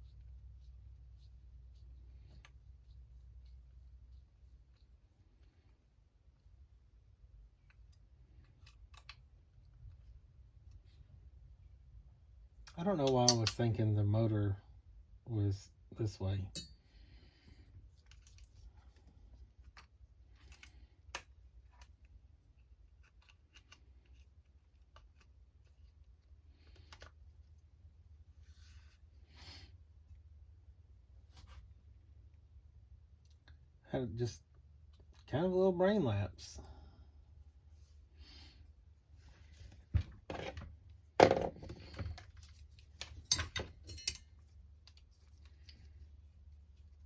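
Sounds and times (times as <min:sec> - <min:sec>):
low steady hum: 0:00.0 - 0:47.0
small parts clinking: 0:41.6 - 0:45.8.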